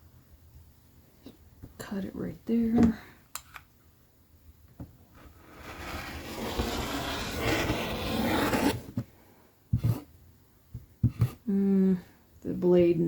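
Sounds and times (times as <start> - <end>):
rotary cutter scraping through fabric: 5.4 - 8.9.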